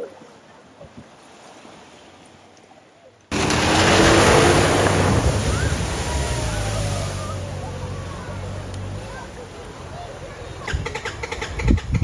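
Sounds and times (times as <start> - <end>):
water spraying from vehicle: 3.3 - 11.8
engine hum: 3.3 - 12.0.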